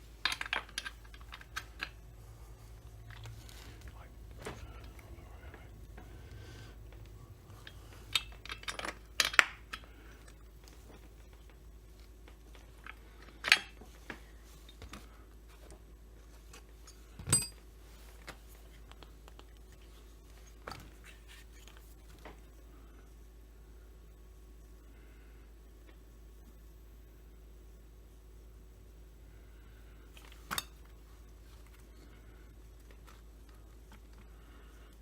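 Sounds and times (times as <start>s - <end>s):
metal parts clicking and clinking: 0.2s - 2.0s, 2.8s - 10.8s, 16.8s - 17.6s.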